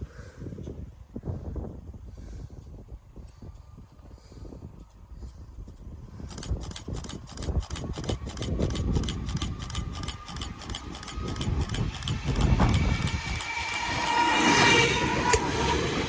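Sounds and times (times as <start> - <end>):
low train rumble: 0.0 - 16.0
train wheels clattering over rail joints: 6.2 - 16.0.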